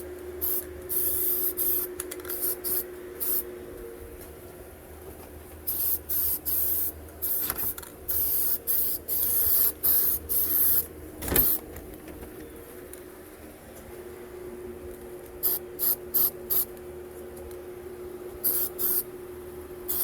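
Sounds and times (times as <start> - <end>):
compressed air gun hissing: 0.4 - 3.4, 5.7 - 11.6, 15.4 - 16.7, 18.4 - 19.1.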